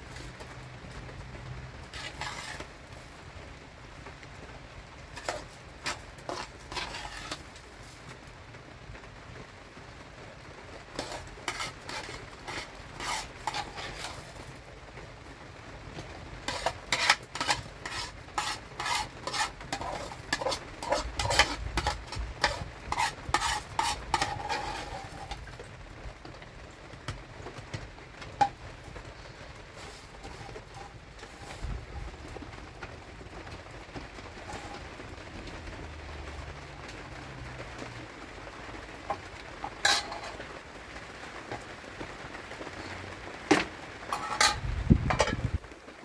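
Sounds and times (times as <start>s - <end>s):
spoon scraping cooking pot: 1.9s - 2.7s, 5.2s - 8.0s, 11.0s - 14.5s, 16.0s - 25.7s, 27.5s - 32.5s, 34.4s - 34.9s, 39.1s - 40.5s, 43.5s - 45.5s.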